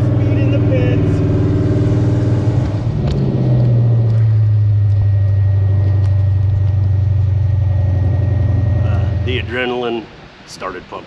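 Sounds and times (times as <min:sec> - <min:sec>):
truck engine idling: 0:00.0 - 0:09.8.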